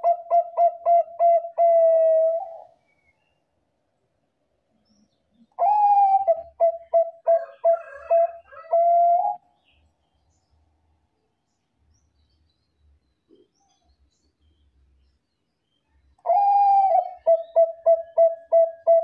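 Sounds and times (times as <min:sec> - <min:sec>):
dove cooing: 0:00.0 - 0:02.8, 0:05.6 - 0:09.4, 0:16.2 - 0:19.0.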